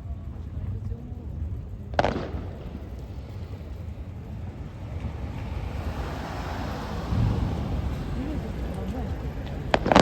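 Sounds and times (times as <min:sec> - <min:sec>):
low rumble of firework bursts: 0:00.0 - 0:10.0
dull firework boom: 0:01.9 - 0:06.0, 0:06.9 - 0:10.0
firework hiss: 0:02.0 - 0:10.0.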